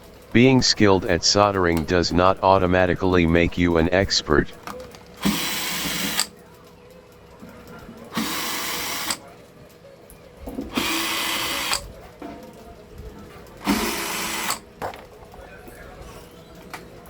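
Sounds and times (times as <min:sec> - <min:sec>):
small power tool running: 0:05.2 - 0:06.3, 0:08.2 - 0:09.2, 0:10.8 - 0:11.8, 0:13.6 - 0:14.6.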